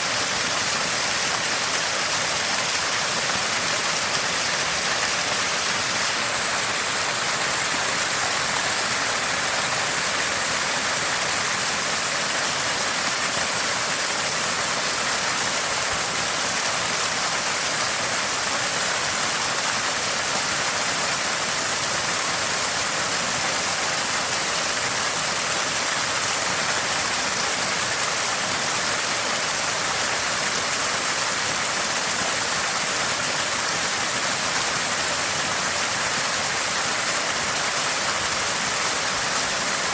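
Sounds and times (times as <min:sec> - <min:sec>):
water gushing from spring: 0:00.0 - 0:39.9.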